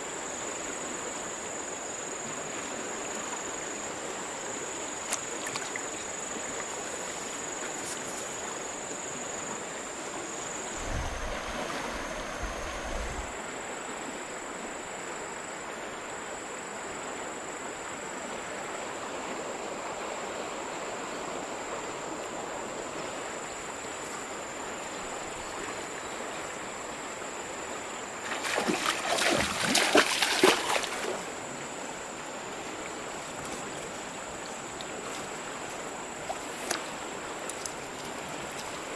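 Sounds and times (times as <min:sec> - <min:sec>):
river water flowing: 0:00.0 - 0:38.9
splashing in water: 0:05.1 - 0:06.6, 0:28.2 - 0:31.3.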